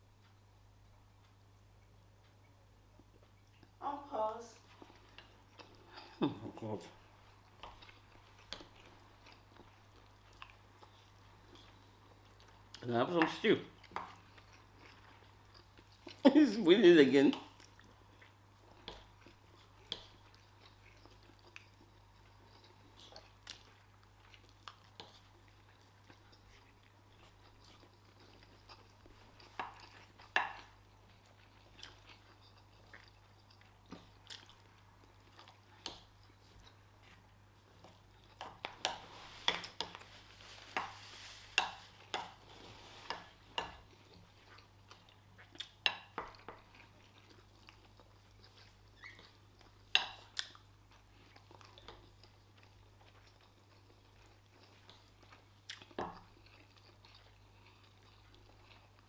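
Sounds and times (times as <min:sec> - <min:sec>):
people chewing: 0:04.6 - 0:59.0.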